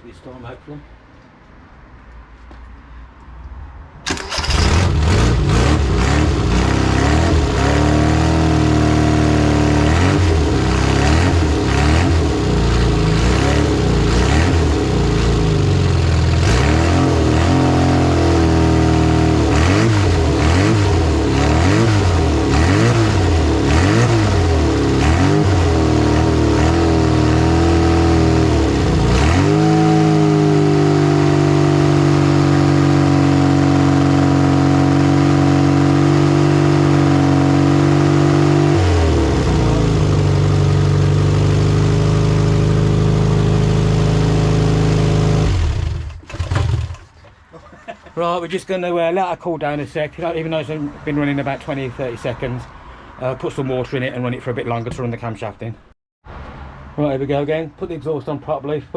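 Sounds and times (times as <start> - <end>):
car engine starting and revving: 4.0 - 47.2.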